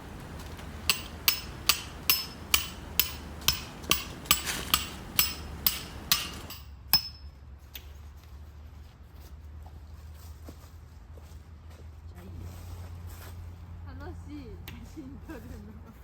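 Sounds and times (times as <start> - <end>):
hammer striking metal tent peg: 0.7 - 7.3.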